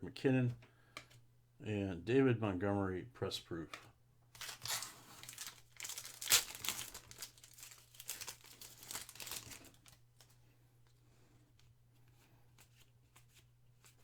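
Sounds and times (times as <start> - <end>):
plastic wrapper tearing and crinkling: 4.3 - 10.4.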